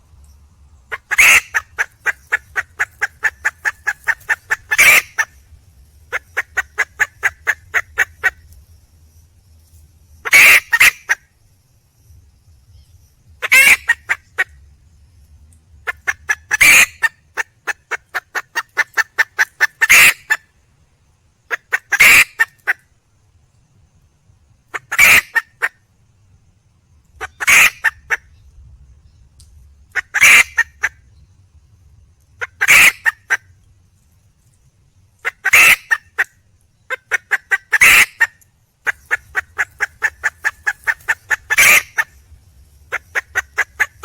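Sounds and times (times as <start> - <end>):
hen cackling harshly: 0.9 - 5.4, 6.1 - 8.4, 10.2 - 11.2, 13.4 - 14.5, 15.9 - 20.4, 21.5 - 22.8, 24.7 - 25.7, 27.2 - 28.2, 30.0 - 31.0, 32.4 - 33.4, 35.2 - 36.3, 36.9 - 42.2, 42.9 - 44.0
hen clucking: 0.9 - 5.4, 6.1 - 8.4, 10.2 - 11.2, 13.4 - 14.5, 15.9 - 20.4, 27.2 - 28.2, 29.9 - 31.0, 32.4 - 33.4, 35.2 - 36.3, 36.9 - 42.2, 42.9 - 44.0.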